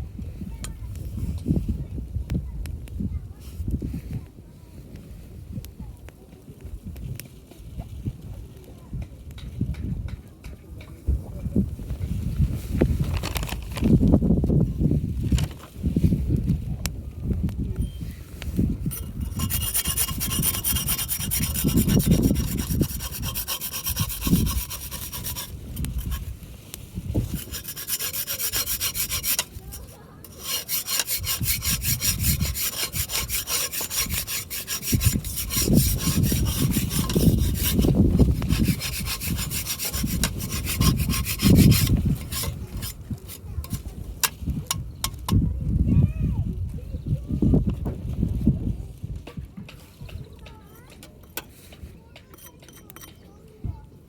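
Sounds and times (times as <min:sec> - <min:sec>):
hand saw cutting wood: 0:18.9 - 0:26.3, 0:27.2 - 0:43.8.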